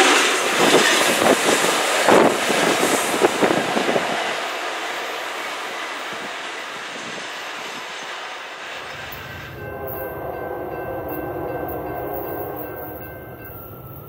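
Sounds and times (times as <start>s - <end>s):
freight train rolling on rails: 0.0s - 14.0s
locomotive horn: 8.8s - 14.0s.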